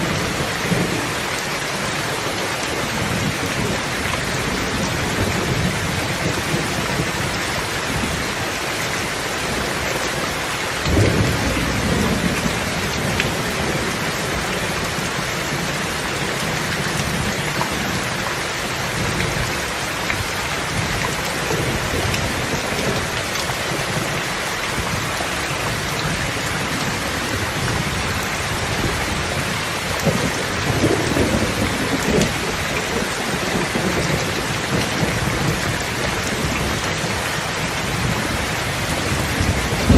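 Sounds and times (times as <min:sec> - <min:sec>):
heavy rain falling: 0:00.0 - 0:39.9
thunder rumbling: 0:10.8 - 0:18.2, 0:24.8 - 0:39.9.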